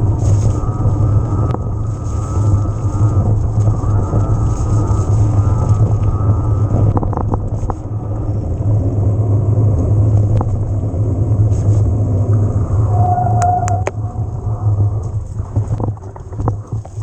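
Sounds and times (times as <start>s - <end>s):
wind buffeting microphone: 0.0s - 17.0s
bike clicks and rattles: 15.0s - 17.0s.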